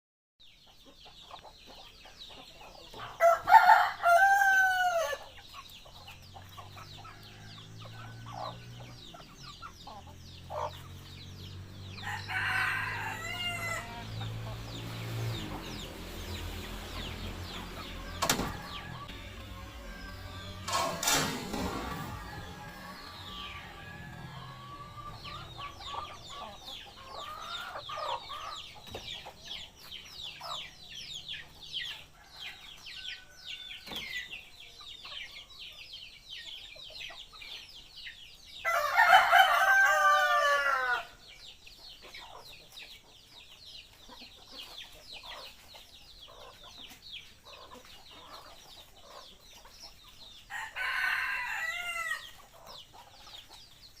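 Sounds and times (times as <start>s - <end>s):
rooster crowing: 3.2s - 5.2s, 6.9s - 8.7s, 12.0s - 14.2s, 17.8s - 28.0s, 38.6s - 41.2s, 50.5s - 52.3s.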